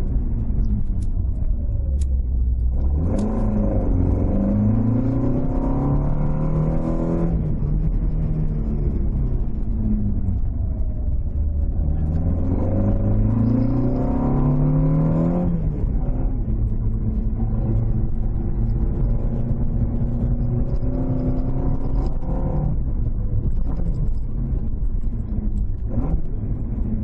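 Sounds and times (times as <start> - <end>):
car engine revving under acceleration: 0.0 - 27.0.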